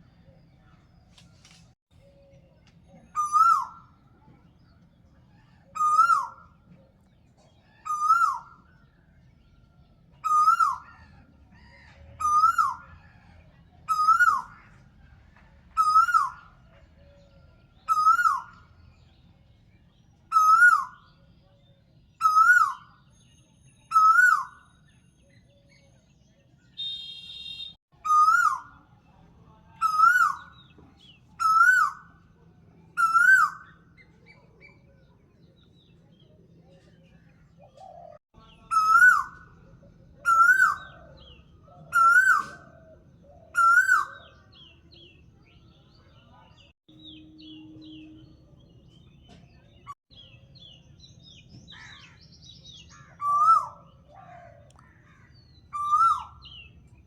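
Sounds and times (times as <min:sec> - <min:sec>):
bird call: 0:37.7 - 0:42.8, 0:52.8 - 0:56.7.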